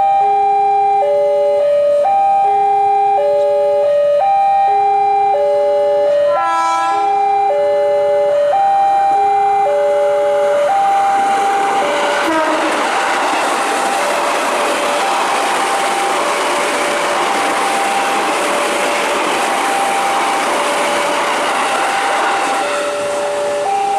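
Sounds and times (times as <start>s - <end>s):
level crossing alarm: 0.0s - 23.9s
passing train rumble: 5.4s - 23.9s
train horn toot: 6.3s - 7.2s, 12.2s - 12.8s.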